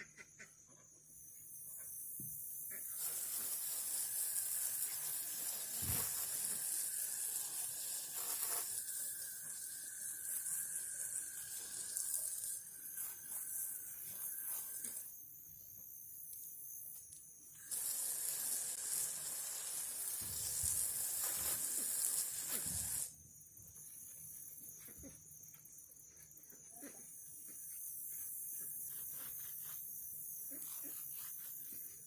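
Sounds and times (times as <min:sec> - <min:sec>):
hissing spray: 0:02.2 - 0:15.2, 0:17.6 - 0:23.2.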